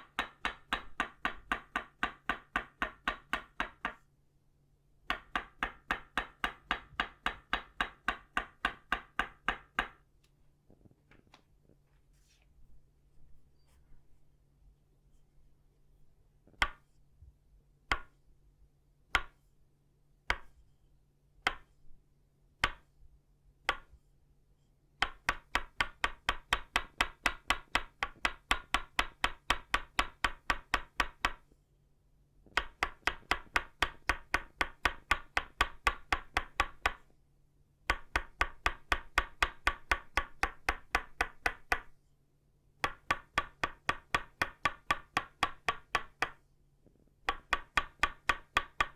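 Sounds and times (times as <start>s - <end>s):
wooden mallet striking wooden peg: 0.0s - 4.0s, 5.1s - 10.0s, 16.6s - 16.9s, 17.9s - 18.2s, 19.1s - 19.4s, 20.3s - 20.5s, 21.4s - 21.7s, 22.6s - 22.8s, 23.7s - 23.9s, 25.0s - 31.4s, 32.6s - 37.0s, 37.9s - 41.9s, 42.8s - 46.4s, 47.3s - 48.9s.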